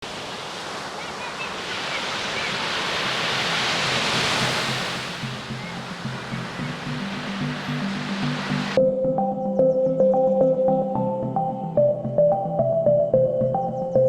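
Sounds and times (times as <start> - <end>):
sea surf washing onto beach: 0.0 - 8.8
background music low sustained notes: 5.0 - 14.0.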